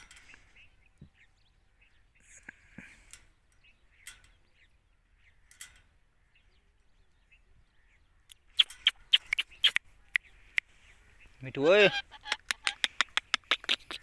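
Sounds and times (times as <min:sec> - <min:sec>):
faint bird chirps: 0:00.0 - 0:14.0
sharp ticks: 0:08.3 - 0:10.7, 0:11.9 - 0:14.0.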